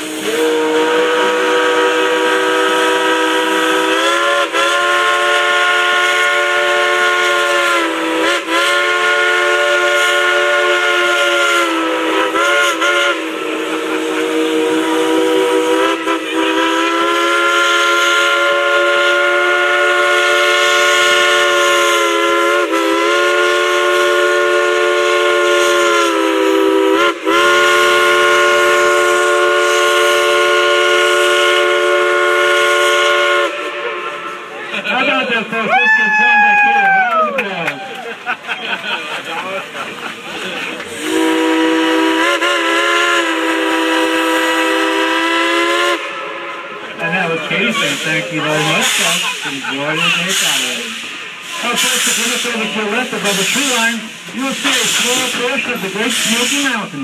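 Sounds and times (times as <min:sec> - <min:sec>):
steam whistle chord blasts: 0:00.0 - 0:34.5, 0:41.0 - 0:46.9.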